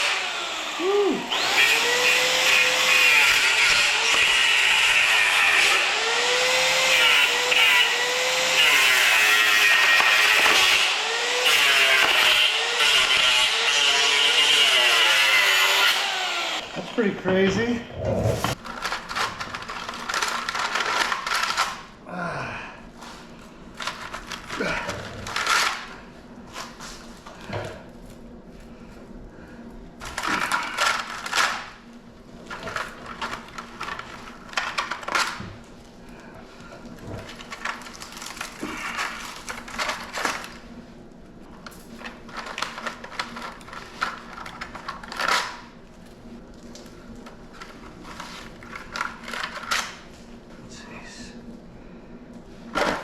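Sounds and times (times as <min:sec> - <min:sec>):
steady low hum: 0:21.8 - 0:53.0.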